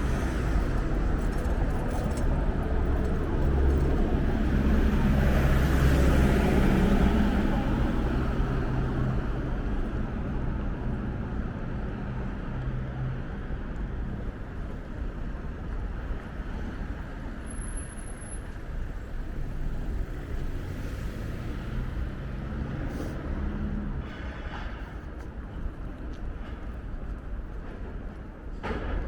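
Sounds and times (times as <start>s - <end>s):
traffic engines and road noise: 0.0s - 29.0s.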